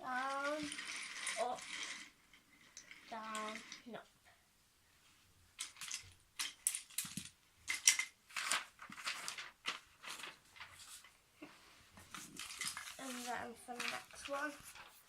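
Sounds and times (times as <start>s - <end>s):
wooden train track pieces clacking: 0.1s - 3.9s, 5.6s - 10.8s, 12.1s - 15.0s.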